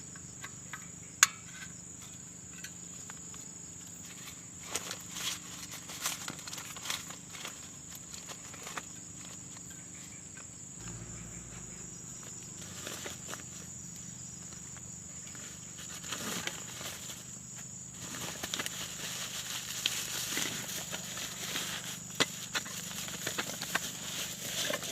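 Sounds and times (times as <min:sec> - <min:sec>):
small clicks and rustles: 0:01.6 - 0:09.8
insect buzzing: 0:10.3 - 0:17.8.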